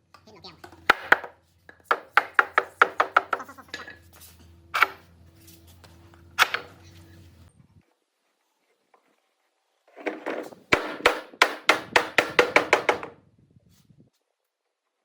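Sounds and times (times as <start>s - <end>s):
hammer knocking on wood: 0.9s - 3.5s, 10.7s - 13.1s.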